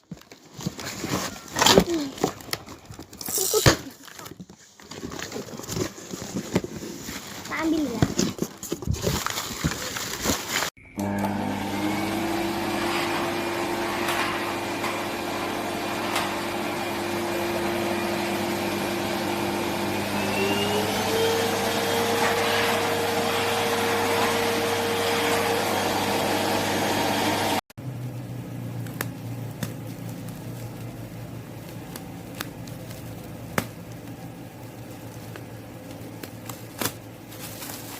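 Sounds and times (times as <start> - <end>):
vacuum cleaner whine: 10.8 - 27.6.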